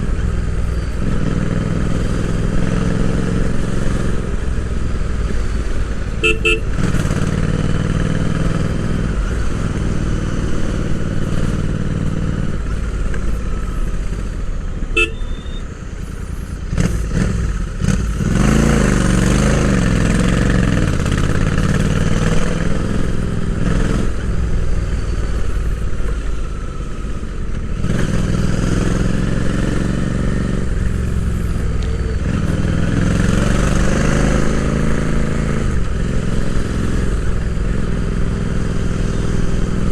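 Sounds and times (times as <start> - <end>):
motorcycle engine revving: 0.0 - 39.9
road and wind noise: 0.0 - 39.9
horn-like beep: 6.2 - 6.8, 14.9 - 16.3.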